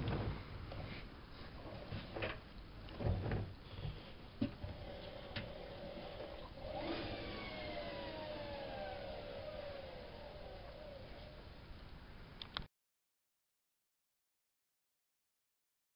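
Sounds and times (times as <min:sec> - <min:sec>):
washing machine motor whine: 0:04.6 - 0:11.6.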